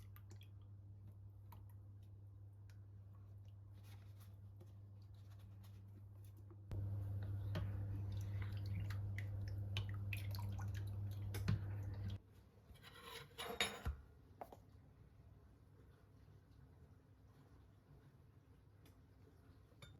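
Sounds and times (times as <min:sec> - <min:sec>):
kitchen appliance humming: 0:06.7 - 0:12.2.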